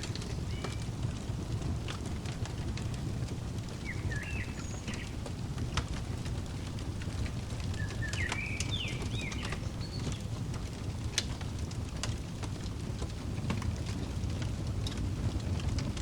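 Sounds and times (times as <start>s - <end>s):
fireplace crackling: 0.0s - 16.0s
bird whistling: 3.9s - 5.0s, 7.8s - 10.0s.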